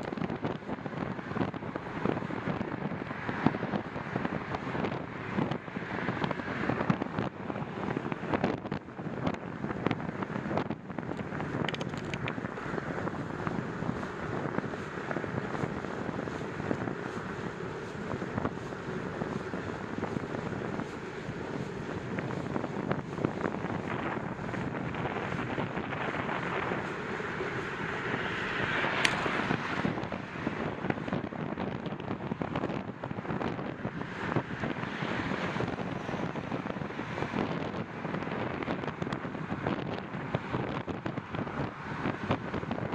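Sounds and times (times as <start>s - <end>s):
wind buffeting microphone: 0.0s - 42.9s
small clicks and knocks: 11.6s - 12.4s.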